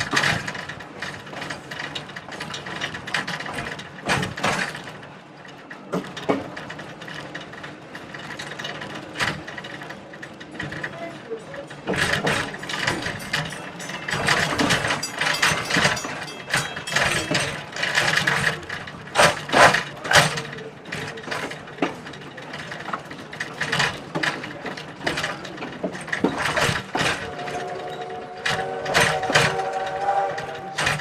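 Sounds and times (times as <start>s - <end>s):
clanks and rattles of running gear: 0.0s - 27.4s
train rolling on track: 0.0s - 31.0s
train horn held chord: 27.1s - 31.0s.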